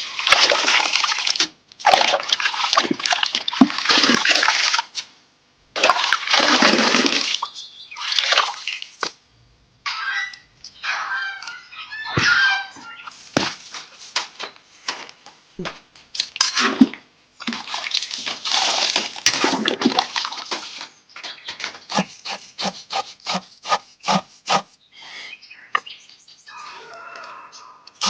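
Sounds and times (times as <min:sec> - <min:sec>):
rubbing or scraping strokes: 0:21.8 - 0:24.7.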